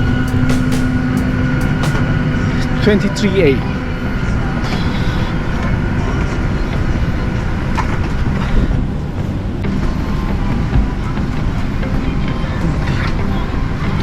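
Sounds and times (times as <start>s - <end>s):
airliner cabin hum: 0.0s - 4.6s.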